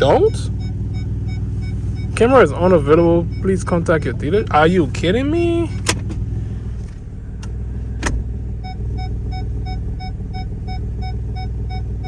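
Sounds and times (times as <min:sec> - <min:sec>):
dashboard chime beeping rapidly: 0:00.0 - 0:03.8
car engine idling: 0:00.0 - 0:12.0
low exhaust rumble: 0:00.0 - 0:12.0.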